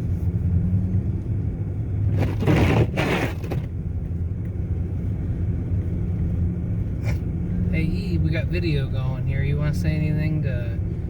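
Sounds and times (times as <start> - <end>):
loud crunching crackling noise: 2.1 - 3.7.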